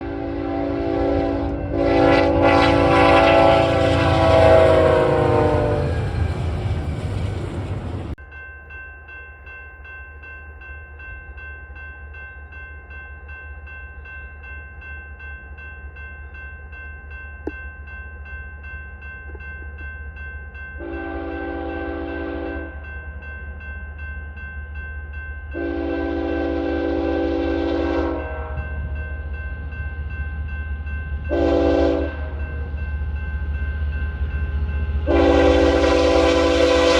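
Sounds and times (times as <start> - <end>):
train air horn blasts: 0.0 - 6.2, 20.8 - 22.7, 25.6 - 28.9, 31.3 - 32.6, 35.1 - 36.9.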